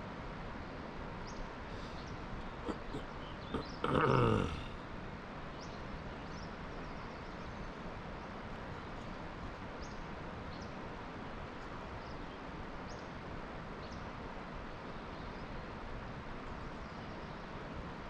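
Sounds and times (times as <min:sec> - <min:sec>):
faint bird chirps: 0:01.2 - 0:04.7.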